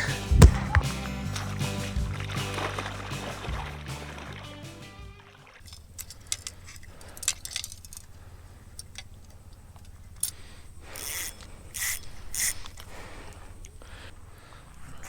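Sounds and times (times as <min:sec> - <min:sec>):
short rasps: 0:10.2 - 0:15.0.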